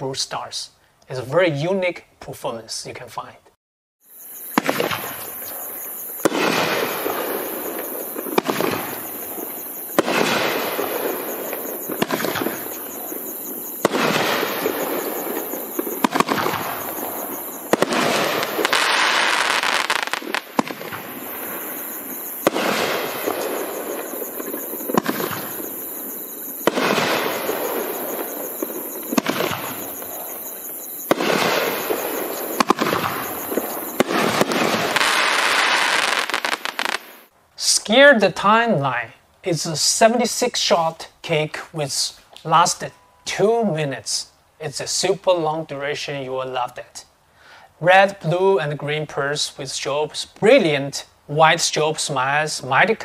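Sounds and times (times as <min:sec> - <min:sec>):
hissing crackling fireworks tail: 0:04.1 - 0:46.0
fireworks firing: 0:04.3 - 0:37.3.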